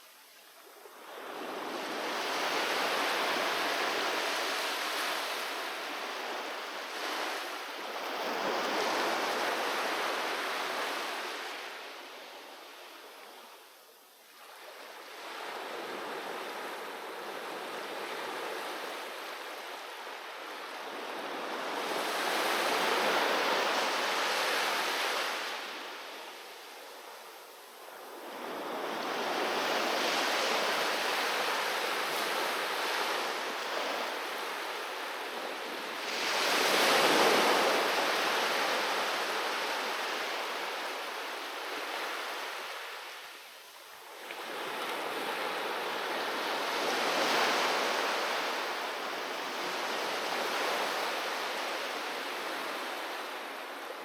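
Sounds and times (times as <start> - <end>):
sea waves washing onto beach: 0.8 - 12.2, 27.8 - 43.4.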